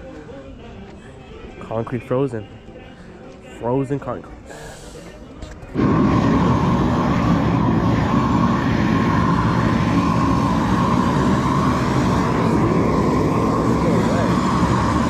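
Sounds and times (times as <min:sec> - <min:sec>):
propane torch roaring: 0:05.8 - 0:15.0.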